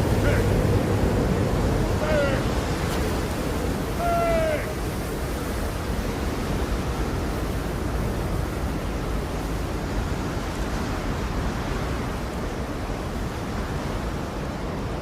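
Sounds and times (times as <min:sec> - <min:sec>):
steady low rushing noise: 0:00.0 - 0:08.4.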